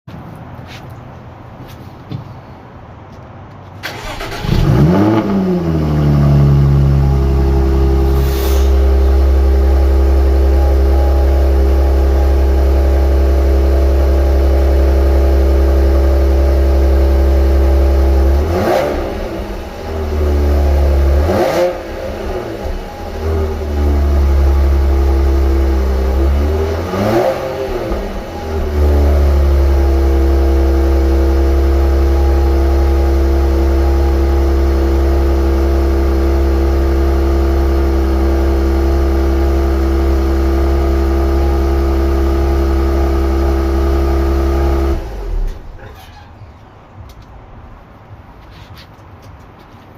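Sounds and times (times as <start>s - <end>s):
car engine starting and idling: 3.8s - 48.2s.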